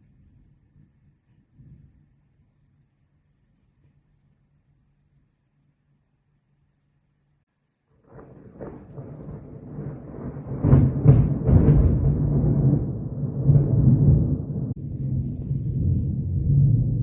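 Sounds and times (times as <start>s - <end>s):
thunder rumbling and cracking: 8.0s - 17.0s.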